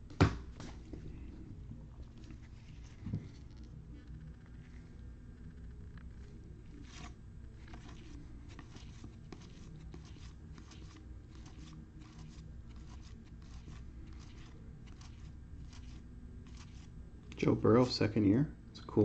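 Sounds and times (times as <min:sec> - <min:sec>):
steady low hum: 0:00.0 - 0:19.0
cards sliding and scraping: 0:06.7 - 0:16.9.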